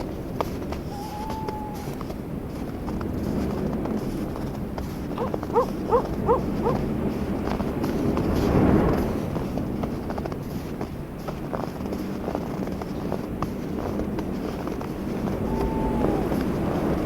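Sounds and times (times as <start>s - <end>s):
wind rumble: 0.0s - 9.5s, 14.0s - 17.0s
animal calling rising notes: 0.9s - 2.0s, 5.2s - 6.8s, 15.3s - 17.0s.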